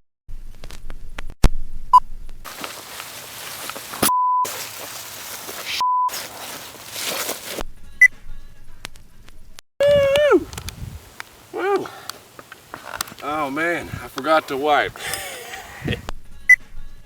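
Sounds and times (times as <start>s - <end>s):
background hiss: 2.5s - 7.6s, 9.8s - 16.1s
sharp clicks: 10.1s - 11.4s, 12.0s - 13.2s.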